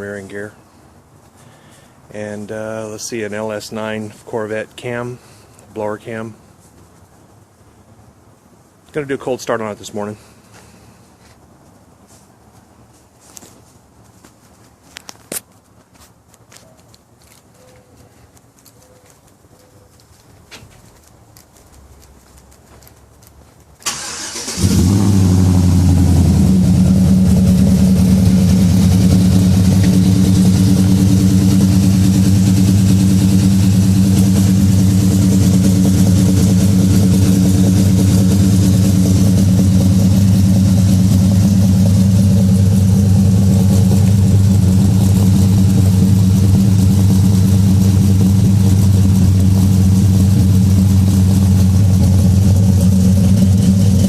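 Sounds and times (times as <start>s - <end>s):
car engine revving and idling: 23.9s - 54.0s.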